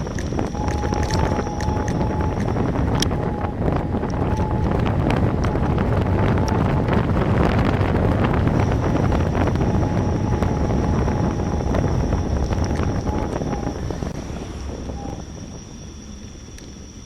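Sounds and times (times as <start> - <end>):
small rattling clicks: 0.0 - 3.1
faint thin whine: 0.0 - 17.0
low rumble: 0.0 - 17.0
wind buffeting microphone: 0.0 - 17.0.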